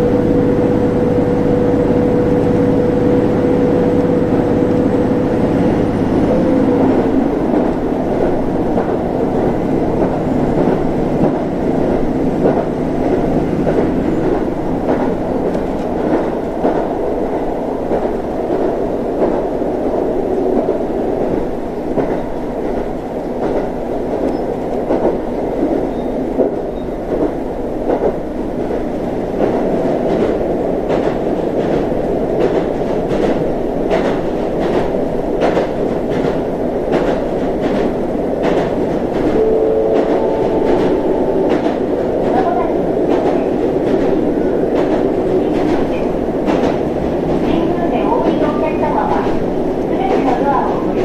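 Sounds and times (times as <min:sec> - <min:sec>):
train running gear rumble: 0:00.0 - 0:51.0
brief steady tone: 0:39.4 - 0:41.5.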